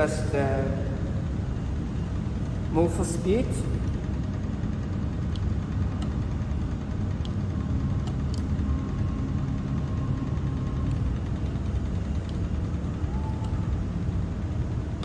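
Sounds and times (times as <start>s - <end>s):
machinery humming: 0.0s - 15.0s
faint thin whine: 8.2s - 14.4s.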